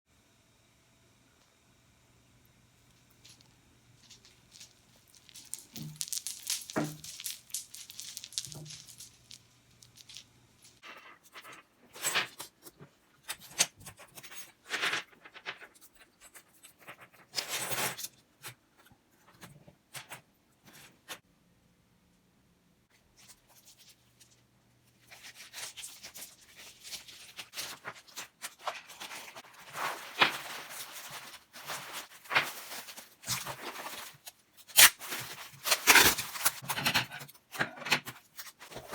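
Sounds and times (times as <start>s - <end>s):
beaded curtain rattling: 4.0s - 10.8s.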